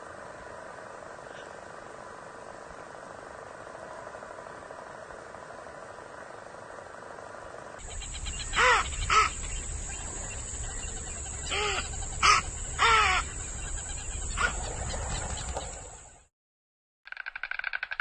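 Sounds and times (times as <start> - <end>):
steady hiss: 0.0 - 14.1
steady hum: 0.0 - 14.7
bird cawing: 7.8 - 15.8.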